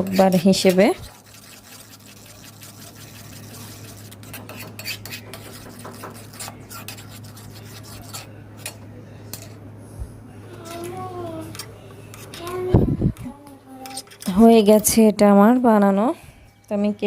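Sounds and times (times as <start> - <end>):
utensil scraping a pan: 0.0 - 9.6, 13.8 - 15.0
steady low hum: 0.0 - 17.0.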